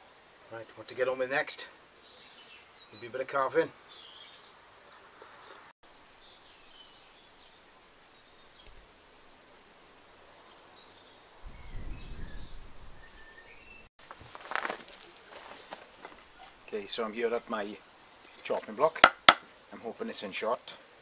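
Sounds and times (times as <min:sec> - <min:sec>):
small birds chirping: 0:01.3 - 0:20.6
low rumble: 0:11.4 - 0:13.9.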